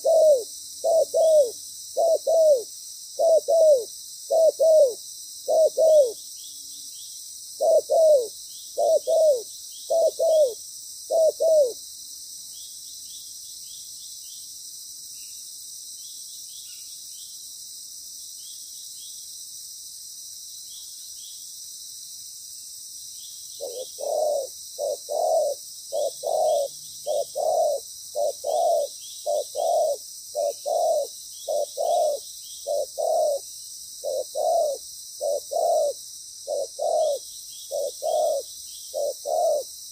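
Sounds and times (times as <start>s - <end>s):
doves cooing: 0.0s - 6.2s, 7.6s - 11.8s, 23.6s - 33.4s, 34.0s - 39.7s.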